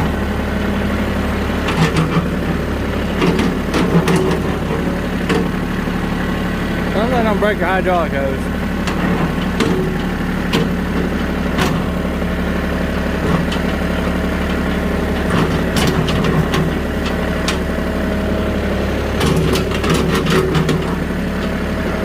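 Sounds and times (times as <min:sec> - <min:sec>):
vehicle engine running: 0:00.0 - 0:22.0
metal clanks and knocks: 0:01.6 - 0:05.6, 0:08.8 - 0:12.0, 0:19.2 - 0:21.1.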